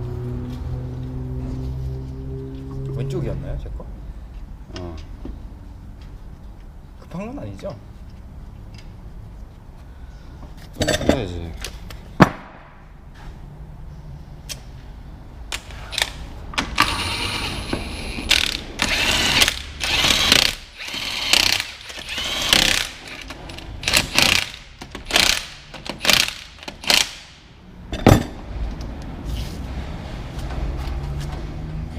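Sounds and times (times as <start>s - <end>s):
impact wrench bursts: 15.6s - 27.5s.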